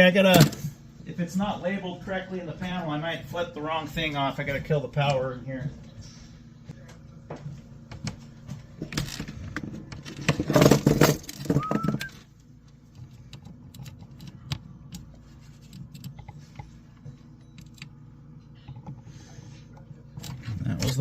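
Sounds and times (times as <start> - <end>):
clatter with short rising squeak: 10.5 - 12.2.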